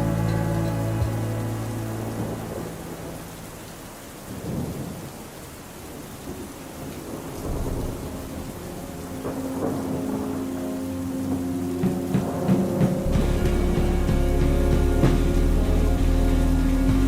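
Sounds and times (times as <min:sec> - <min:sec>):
song: 0:00.0 - 0:03.9, 0:08.6 - 0:17.0
steady rain: 0:00.0 - 0:17.0
thunder rolling: 0:00.0 - 0:17.0.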